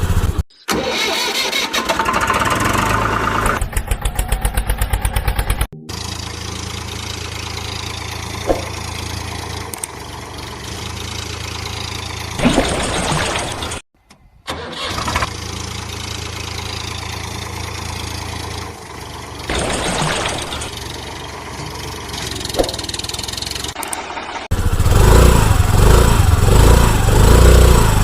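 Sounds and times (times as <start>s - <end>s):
vehicle engine idling: 2.6s - 12.4s, 15.2s - 19.6s, 20.6s - 28.0s.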